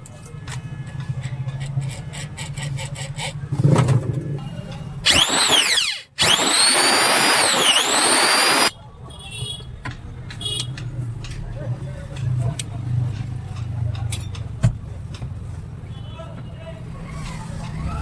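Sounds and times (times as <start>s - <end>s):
angle grinder whining: 5.1s - 8.7s
ticking: 5.1s - 8.7s.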